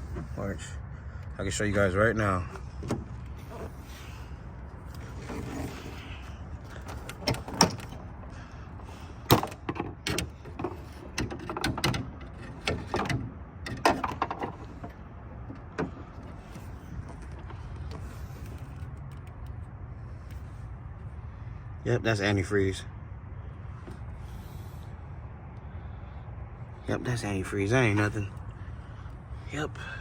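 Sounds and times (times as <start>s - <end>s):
clicks and knocks of parts handled: 9.2s - 19.6s.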